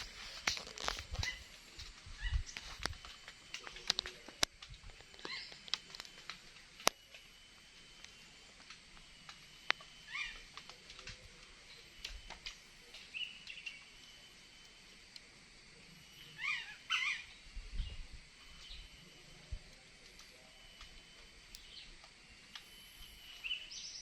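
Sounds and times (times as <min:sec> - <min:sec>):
small bird chirping: 0:00.0 - 0:01.6, 0:05.0 - 0:08.4, 0:09.0 - 0:14.8, 0:15.9 - 0:24.0
faint clicks: 0:00.0 - 0:13.9, 0:19.6 - 0:22.8.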